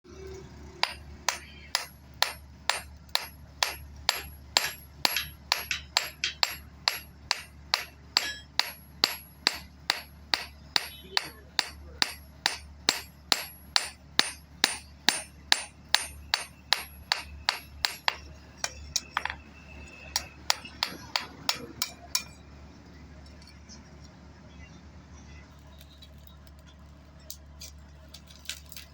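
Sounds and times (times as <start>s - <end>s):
hammer striking metal on anvil: 0.8s - 22.4s.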